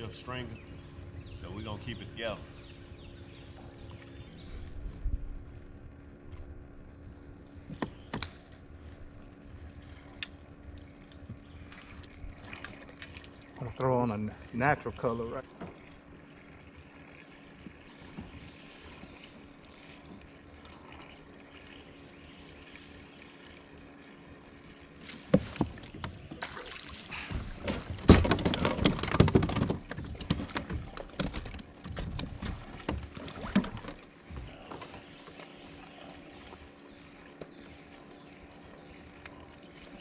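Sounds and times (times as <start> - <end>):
water splashing against a kayak: 7.7 - 21.6, 22.3 - 40.0.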